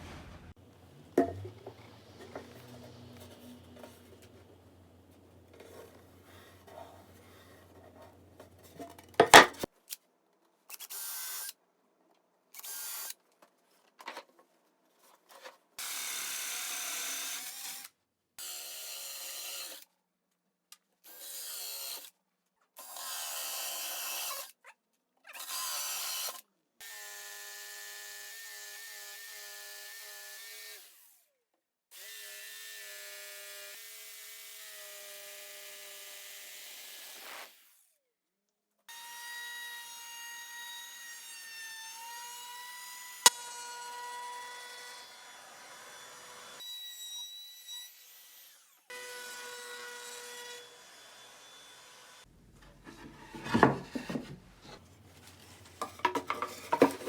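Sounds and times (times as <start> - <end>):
power tool rasping wood: 55.4 - 57.0.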